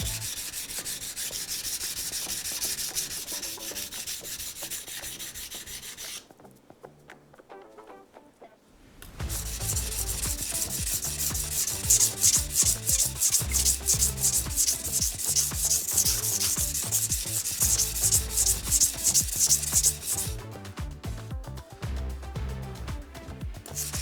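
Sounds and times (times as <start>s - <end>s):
knife scraping on whetstone: 0.0s - 6.3s, 9.2s - 20.3s
soft background music: 0.0s - 24.0s.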